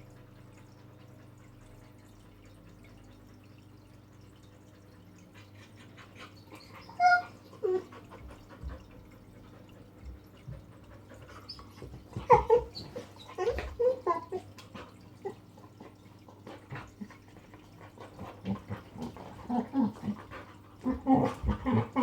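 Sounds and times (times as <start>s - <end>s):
faint steady hum: 0.0s - 22.0s
dog whining and yelping: 6.3s - 8.2s, 11.3s - 14.6s.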